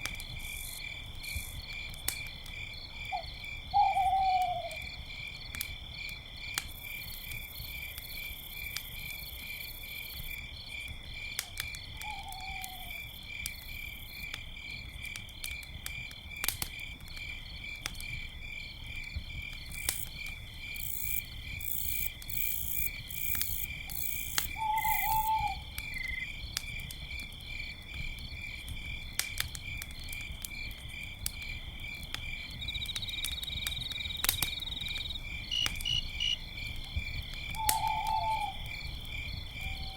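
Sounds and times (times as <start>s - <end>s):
campfire crackling: 0.0s - 4.1s, 4.7s - 39.9s
crickets chirping: 0.1s - 39.9s
sharp pops from fire: 1.3s - 2.6s, 10.8s - 12.1s, 14.2s - 18.3s, 19.2s - 39.3s
owl calls: 3.2s - 4.8s, 12.0s - 13.0s, 24.6s - 25.7s, 37.6s - 38.7s.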